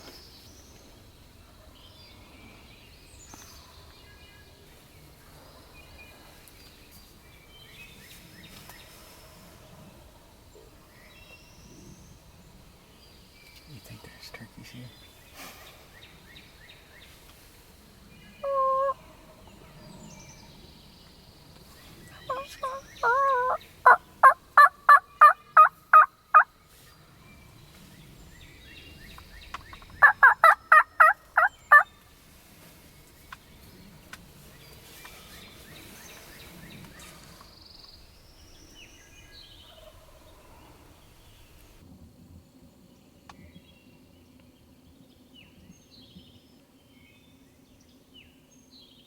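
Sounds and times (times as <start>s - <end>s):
small birds chirping: 10.5s - 41.8s
turkey yelping: 18.4s - 19.0s, 22.3s - 26.5s, 30.0s - 31.8s.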